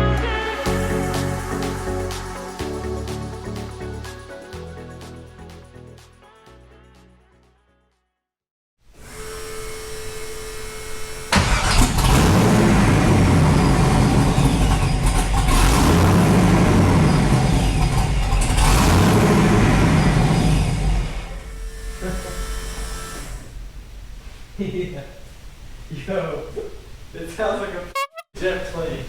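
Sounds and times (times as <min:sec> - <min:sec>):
supercharger whine: 0:09.0 - 0:24.2
car engine revving: 0:11.3 - 0:23.6.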